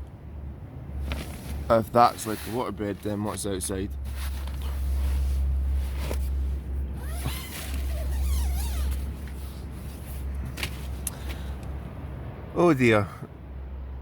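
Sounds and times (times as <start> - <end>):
tent fabric rustling: 1.0 - 3.4, 4.0 - 11.0
tent zip pulled open: 4.0 - 10.7.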